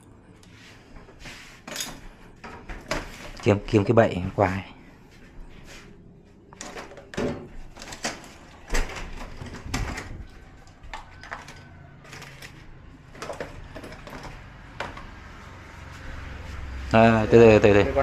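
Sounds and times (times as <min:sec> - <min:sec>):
clicks and knocks of handled parts: 0:01.7 - 0:02.0, 0:06.6 - 0:15.1.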